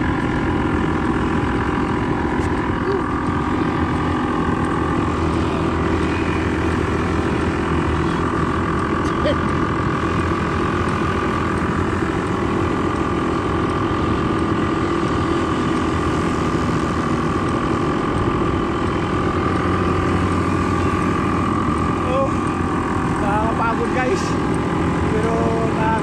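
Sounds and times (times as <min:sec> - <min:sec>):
quad bike engine running: 0:00.0 - 0:26.0.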